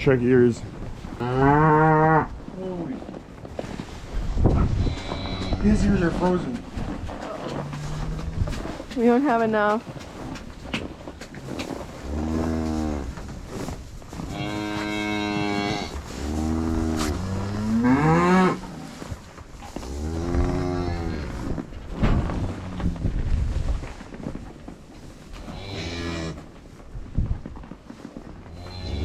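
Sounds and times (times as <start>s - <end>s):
cattle mooing: 1.2s - 2.3s, 4.8s - 5.8s, 14.3s - 18.7s, 28.6s - 29.0s.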